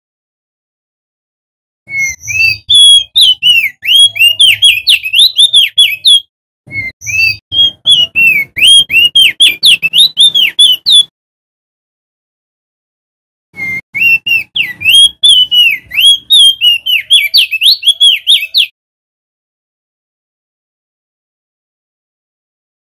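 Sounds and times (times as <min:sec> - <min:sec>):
bird whistled song: 0:01.9 - 0:11.1, 0:13.6 - 0:18.8.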